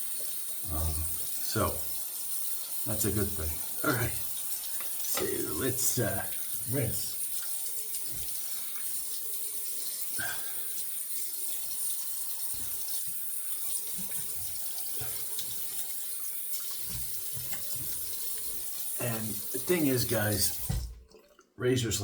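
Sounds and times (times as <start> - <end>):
tap water running into sink: 0.0 - 21.5
low splashes and knocks: 20.5 - 21.2.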